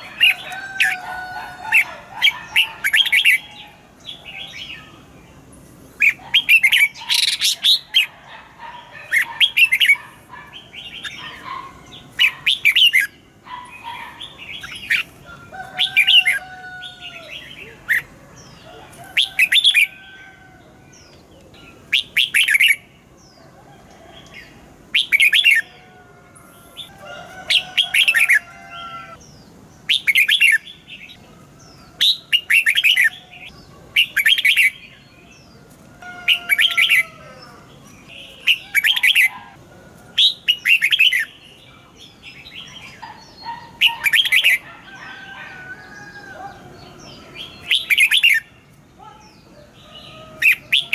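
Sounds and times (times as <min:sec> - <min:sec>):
bird song rapid phrases: 0:00.0 - 0:15.2, 0:20.9 - 0:23.6, 0:24.4 - 0:25.8, 0:29.1 - 0:35.6, 0:37.6 - 0:39.4, 0:40.2 - 0:45.1, 0:45.9 - 0:50.9.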